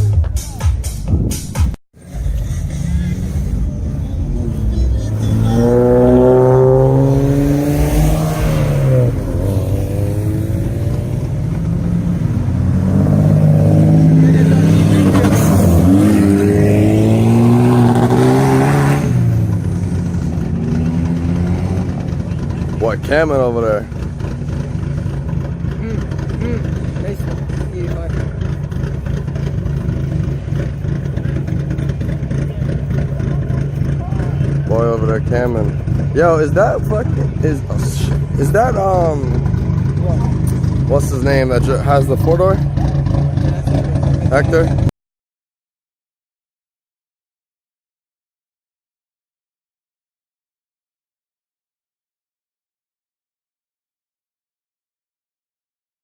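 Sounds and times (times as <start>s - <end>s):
another engine note: 2.0s - 19.5s
car engine accelerating: 2.0s - 44.9s.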